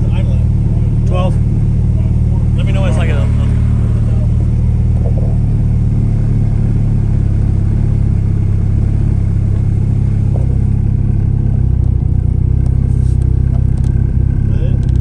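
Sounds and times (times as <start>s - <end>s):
car engine idling: 0.0s - 7.7s.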